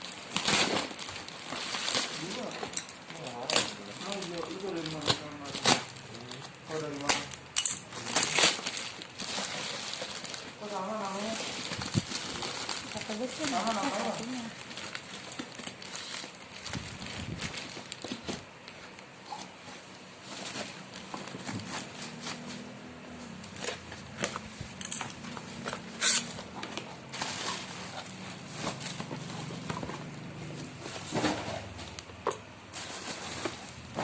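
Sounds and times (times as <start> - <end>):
packaging crinkling and rustling: 0.0 - 34.0.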